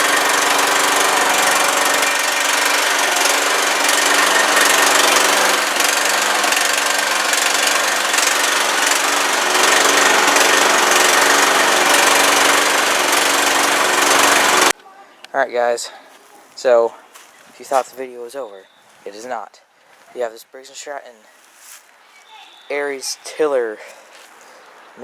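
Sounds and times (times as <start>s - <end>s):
riding lawnmower engine running: 0.0s - 14.8s.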